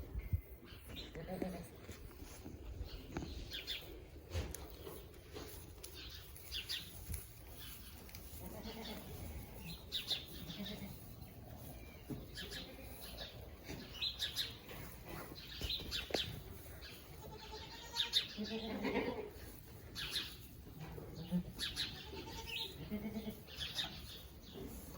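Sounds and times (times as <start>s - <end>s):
small birds chirping: 0.2s - 24.9s
faint goat bleats: 1.0s - 1.8s, 17.2s - 19.3s, 21.2s - 23.5s.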